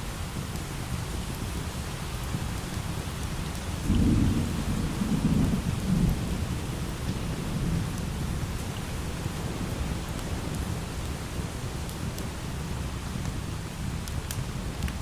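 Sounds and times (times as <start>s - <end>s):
light rain: 0.0s - 15.0s
thunder rumbling: 3.8s - 8.6s.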